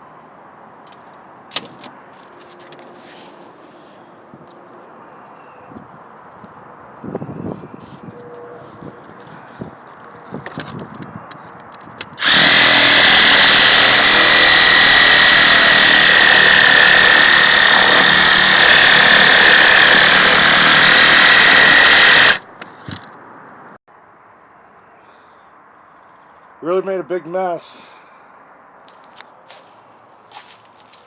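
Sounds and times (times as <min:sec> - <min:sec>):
power tool running: 0:12.2 - 0:22.5.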